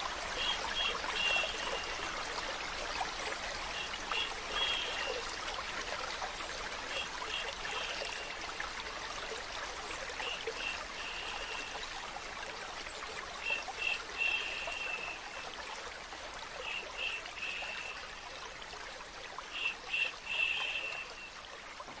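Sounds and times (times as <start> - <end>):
trickling stream: 0.0 - 22.0
person shushing: 16.6 - 18.2, 19.6 - 22.0.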